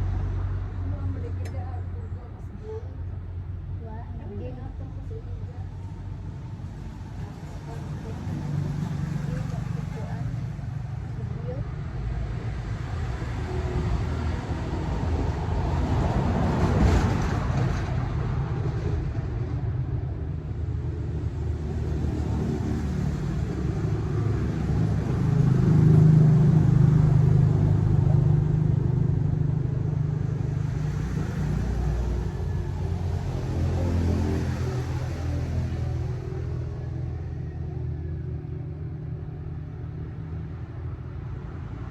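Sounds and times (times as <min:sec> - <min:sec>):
road and wind noise: 0:00.0 - 0:41.9
vehicle engine drone: 0:00.0 - 0:41.9.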